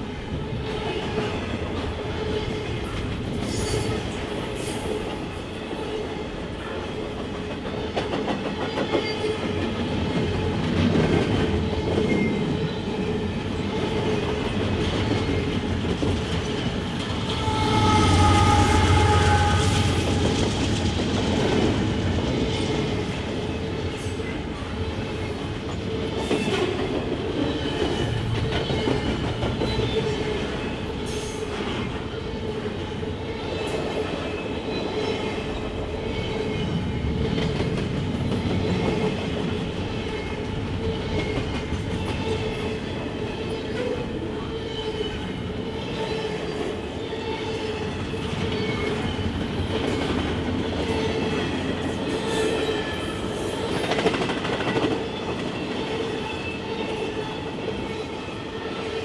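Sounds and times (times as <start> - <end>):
rumble of train wheels on track: 0.0 - 59.0
squealing ring from wheels: 17.2 - 20.6.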